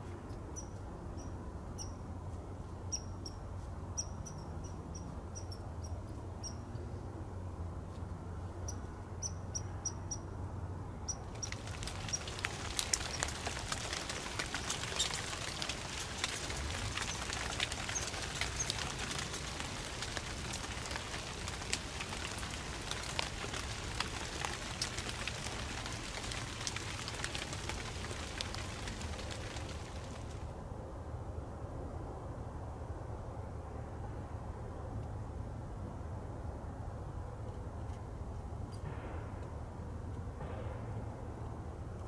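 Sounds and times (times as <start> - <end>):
light rain on dry leaves: 11.1 - 30.6.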